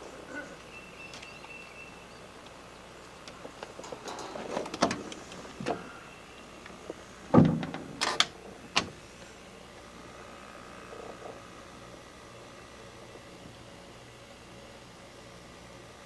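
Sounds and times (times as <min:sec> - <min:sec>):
heavy thud: 0:07.3 - 0:08.0.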